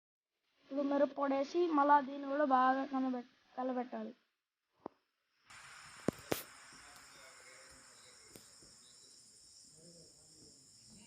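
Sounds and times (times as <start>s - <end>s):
crickets chirring: 5.5s - 11.0s.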